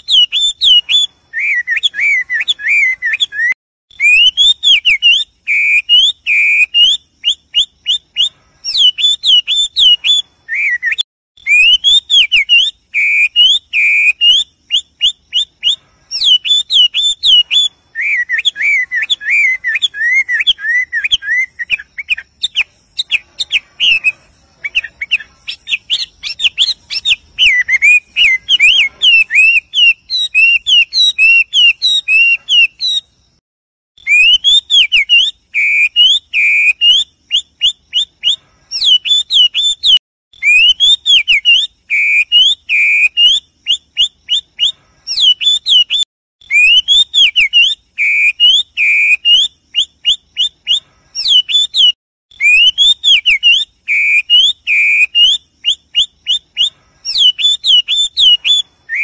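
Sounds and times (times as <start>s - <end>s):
small birds whistling and chirping: 0.0s - 33.4s, 34.0s - 59.0s.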